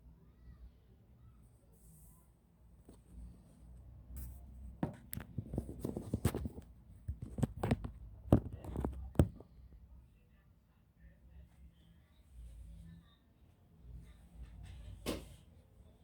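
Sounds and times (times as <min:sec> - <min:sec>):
tools clicking and tapping on laptop: 0:04.2 - 0:09.5.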